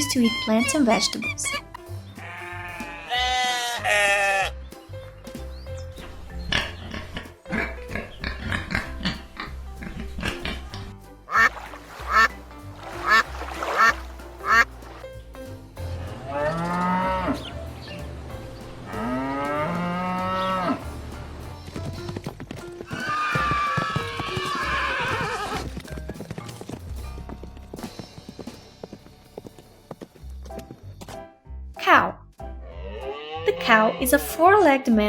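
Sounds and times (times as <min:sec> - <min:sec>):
animal calls: 0:00.0 - 0:01.6, 0:13.0 - 0:14.7, 0:22.9 - 0:25.7
background music: 0:00.0 - 0:35.0.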